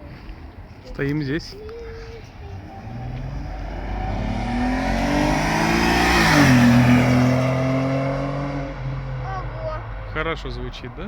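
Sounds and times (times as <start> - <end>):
car accelerating past: 2.6 - 9.3.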